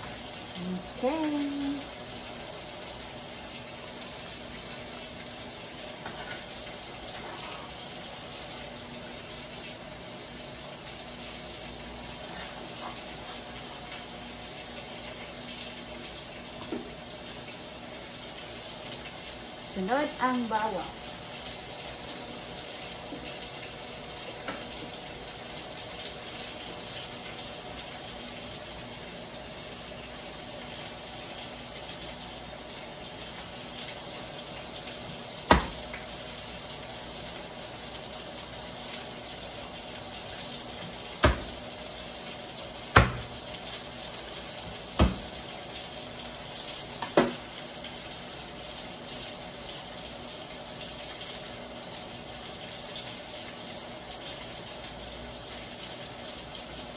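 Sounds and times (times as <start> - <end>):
tofu sizzling in oil: 0.0 - 56.9
knife knocking on cutting board: 35.5 - 35.8, 41.2 - 41.5, 43.0 - 43.4, 45.0 - 45.3.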